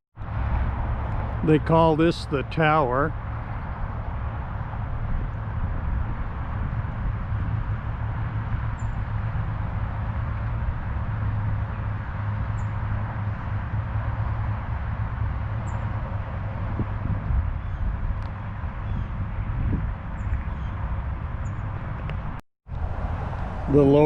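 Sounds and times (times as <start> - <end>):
low rumble and hiss: 0.9 - 18.7, 22.8 - 24.0.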